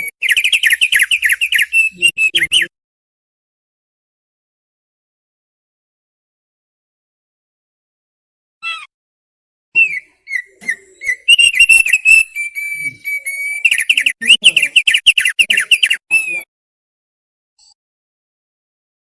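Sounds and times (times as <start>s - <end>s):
bird singing whistled phrases and trills: 0.0s - 2.7s, 9.8s - 16.5s.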